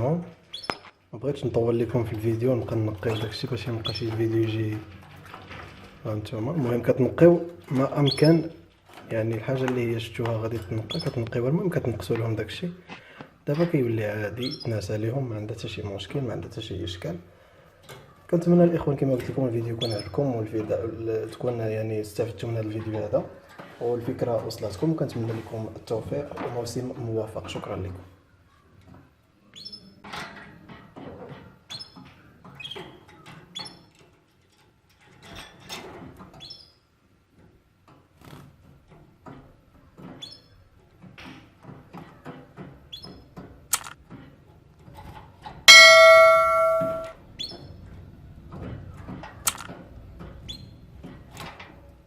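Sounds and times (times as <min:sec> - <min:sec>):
canaries chirping: 0:00.5 - 0:00.9, 0:03.0 - 0:04.2, 0:08.0 - 0:08.5, 0:10.7 - 0:11.3, 0:19.8 - 0:20.2
birds moving in a cage: 0:01.8 - 0:16.0, 0:17.7 - 0:46.2, 0:47.3 - 0:52.0
bell-like tone ringing: 0:45.7 - 0:47.1.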